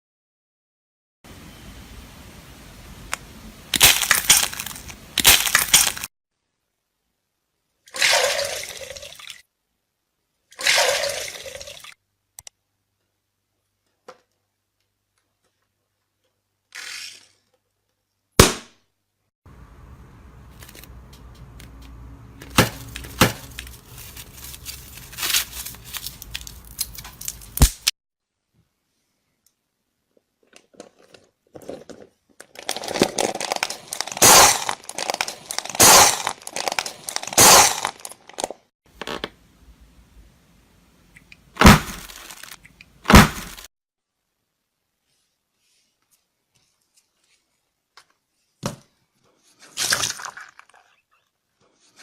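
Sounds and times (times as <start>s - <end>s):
slime crackling and popping: 3.8s - 6.1s, 25.2s - 27.9s.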